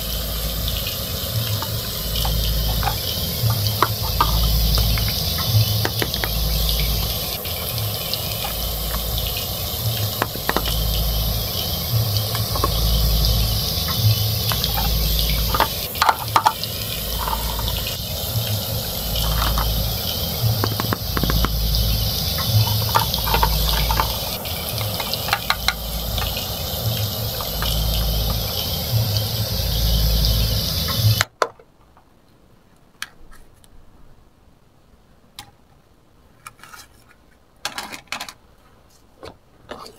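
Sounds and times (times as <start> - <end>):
frying sizzle: 0.0 - 31.3.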